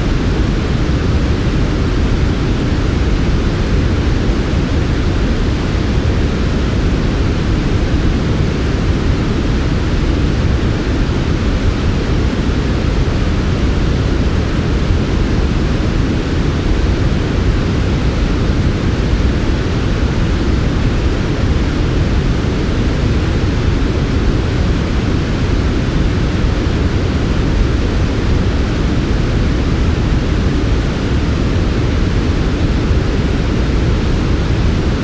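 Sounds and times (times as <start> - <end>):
deep soft white noise: 0.0 - 35.0.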